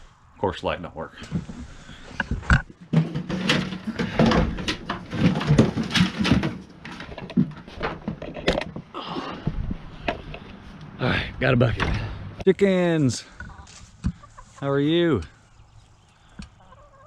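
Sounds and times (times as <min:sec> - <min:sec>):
objects knocking and clattering: 0:02.2 - 0:08.9.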